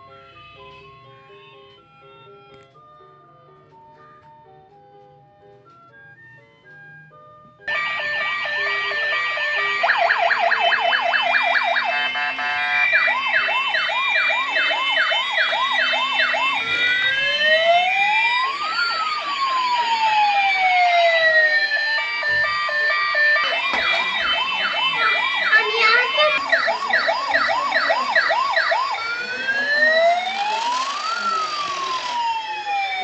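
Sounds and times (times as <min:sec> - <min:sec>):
toy police car sirens: 0:07.7 - 0:33.0
faint electronic tune: 0:21.3 - 0:33.0.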